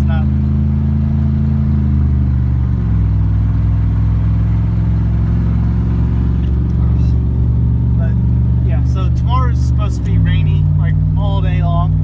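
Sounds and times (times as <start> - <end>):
truck engine from inside cab: 0.0 - 12.0
man talking: 8.0 - 12.0.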